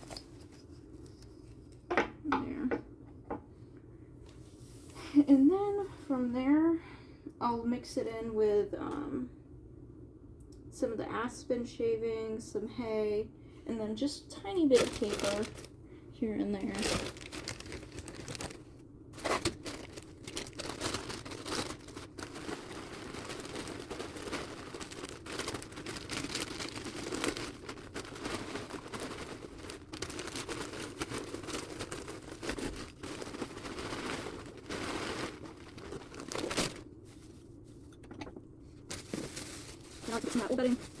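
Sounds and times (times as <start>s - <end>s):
dry bedding rustling by hand: 16.6s - 37.9s.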